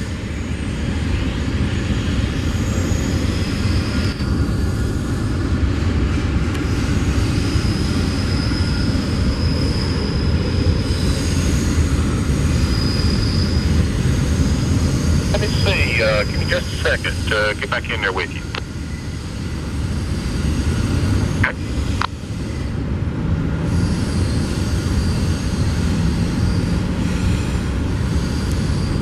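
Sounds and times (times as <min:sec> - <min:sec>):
train wheels rumbling on track: 0:00.0 - 0:29.0
faint high wheel squeals: 0:06.8 - 0:15.3, 0:23.6 - 0:29.0.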